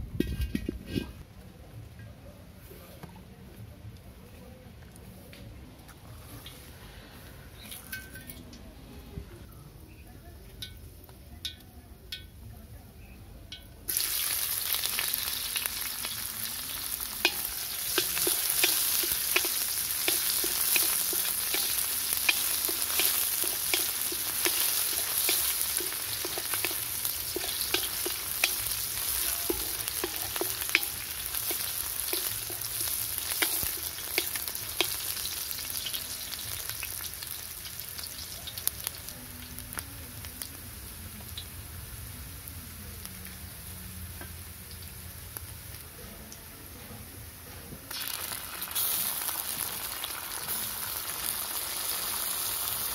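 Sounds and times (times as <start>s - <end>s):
onions sizzling in hot oil: 13.8s - 52.9s.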